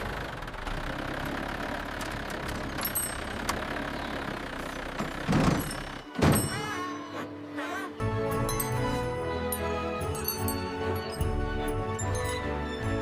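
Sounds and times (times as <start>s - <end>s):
excavator engine running: 0.0s - 13.0s.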